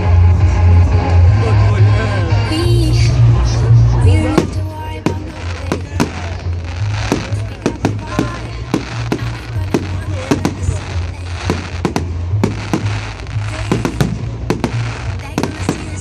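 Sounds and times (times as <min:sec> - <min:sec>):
music with low bass: 0:00.0 - 0:16.0
fireworks banging: 0:04.1 - 0:16.0.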